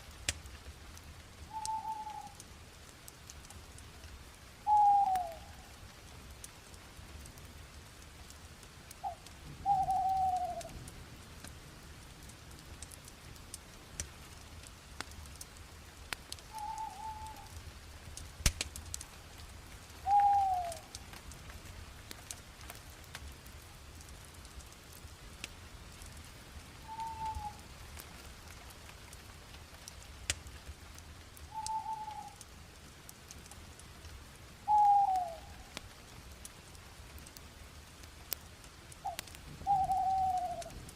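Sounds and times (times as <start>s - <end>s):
bonfire crackling: 0.0s - 40.9s
fire sharp snap: 0.1s - 5.4s, 12.3s - 26.3s, 26.9s - 31.8s, 37.2s - 39.4s
bird falling call: 4.7s - 5.4s, 9.0s - 10.6s, 16.5s - 17.5s, 20.0s - 20.9s, 26.9s - 27.6s, 31.5s - 32.4s, 34.7s - 35.4s, 39.6s - 40.7s.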